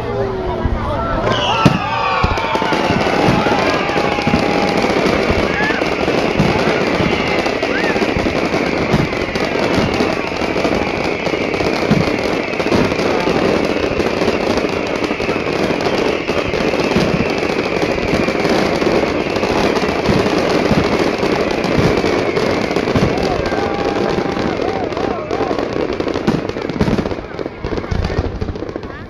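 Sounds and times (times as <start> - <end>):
fireworks bangs and crackle: 0.0 - 29.0.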